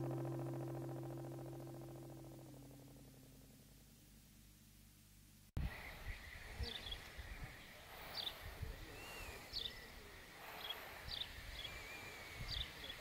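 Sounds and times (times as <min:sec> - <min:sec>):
low thumps: 0:00.0 - 0:04.5
steady background hiss: 0:00.0 - 0:13.0
small birds calling: 0:05.6 - 0:13.0.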